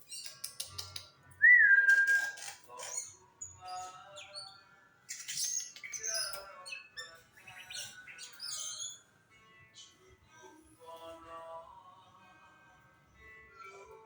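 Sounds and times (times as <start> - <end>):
songbirds singing: 0.0 - 10.2.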